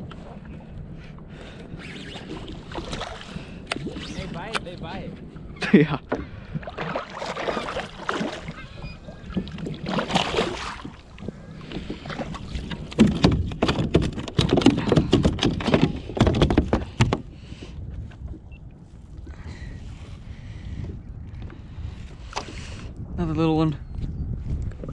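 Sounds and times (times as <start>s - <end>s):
water splashing: 2.2s - 4.9s, 6.4s - 15.1s.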